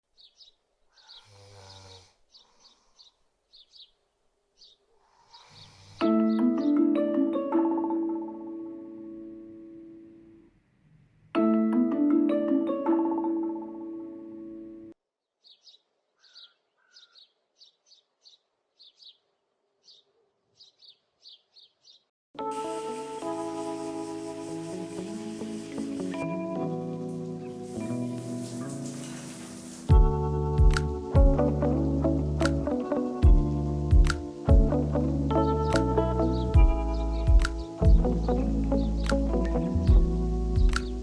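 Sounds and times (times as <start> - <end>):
small birds chirping: 0.1 - 6.8, 15.4 - 41.0
marimba music: 6.0 - 9.1, 11.4 - 14.4, 22.4 - 41.0.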